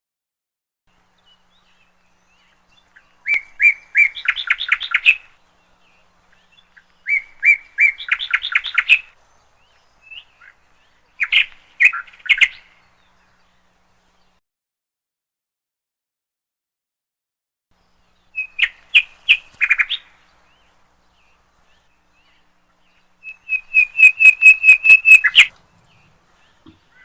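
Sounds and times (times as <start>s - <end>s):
bird singing: 1.1s - 14.4s, 19.7s - 27.0s.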